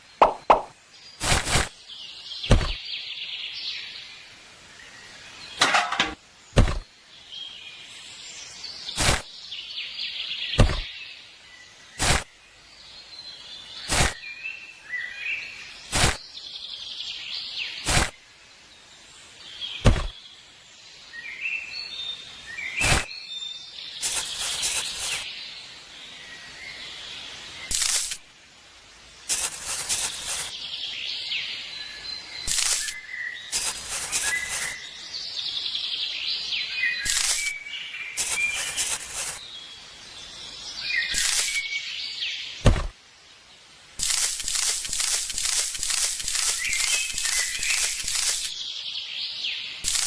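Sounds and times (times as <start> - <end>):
sharp knocks: 0.2 - 0.7, 2.5 - 2.8, 42.6 - 42.9.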